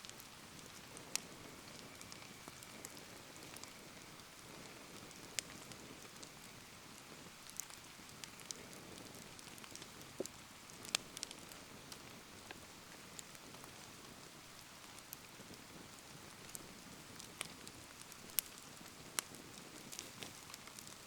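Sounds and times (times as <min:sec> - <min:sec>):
bonfire crackling pops: 0:00.0 - 0:21.0
steady rain falling: 0:00.0 - 0:21.0.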